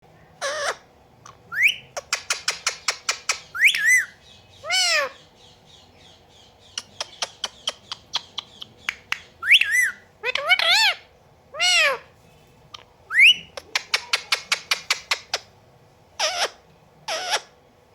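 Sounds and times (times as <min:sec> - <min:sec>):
parakeet squawking and whistling: 0:00.4 - 0:12.1, 0:12.7 - 0:15.5, 0:16.2 - 0:17.5
wavering bird call: 0:01.5 - 0:05.6, 0:13.1 - 0:15.4.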